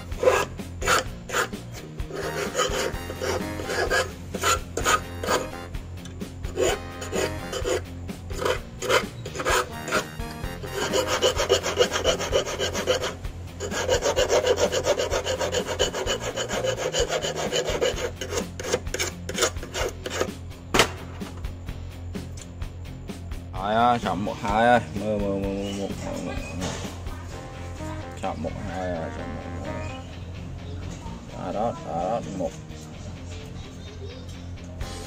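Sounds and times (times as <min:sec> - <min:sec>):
hand file rasping on metal: 0:00.0 - 0:05.6, 0:06.4 - 0:20.4.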